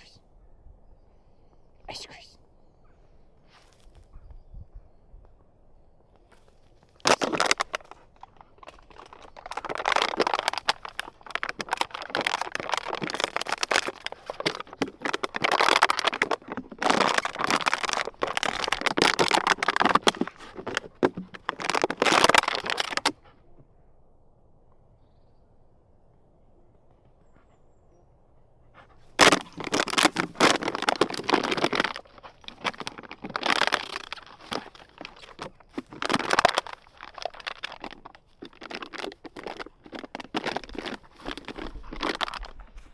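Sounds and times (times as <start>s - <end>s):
crackling crunching rustle: 3.4s - 4.2s, 6.1s - 23.3s, 28.8s - 42.9s.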